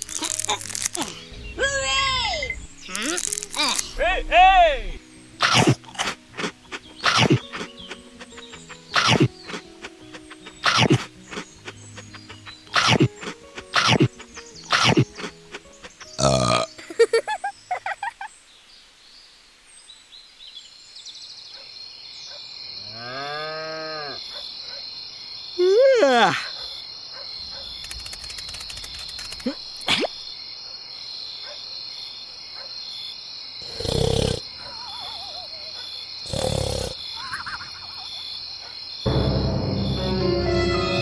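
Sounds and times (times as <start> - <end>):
cow mooing: 22.9 - 24.2
breathy snore sounds: 33.6 - 34.5, 36.2 - 37.0.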